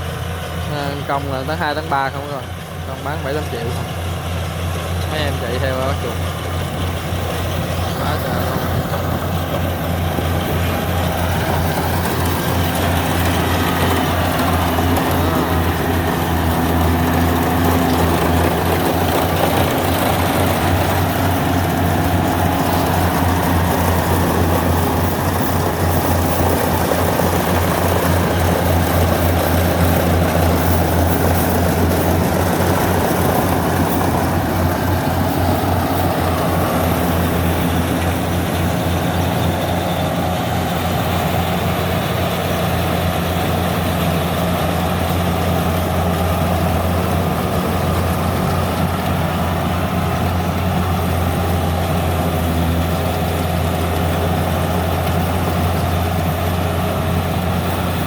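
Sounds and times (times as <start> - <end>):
combine harvester engine humming: 0.0 - 58.0.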